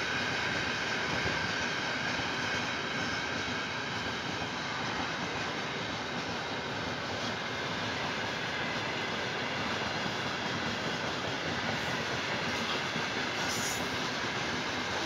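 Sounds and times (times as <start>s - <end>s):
freight train wheels rolling: 0.0s - 15.0s.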